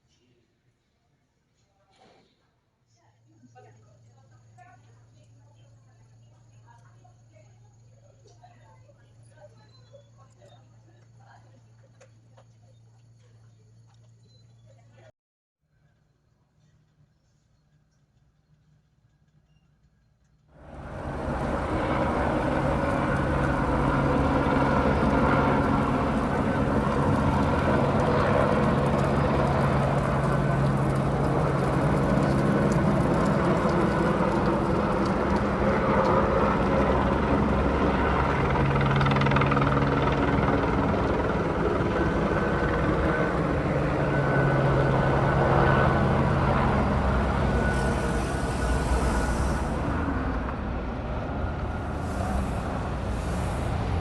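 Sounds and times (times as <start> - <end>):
low hum: 16.0 - 54.0
vehicle rumble: 20.6 - 54.0
hiss: 47.6 - 50.0, 51.9 - 54.0.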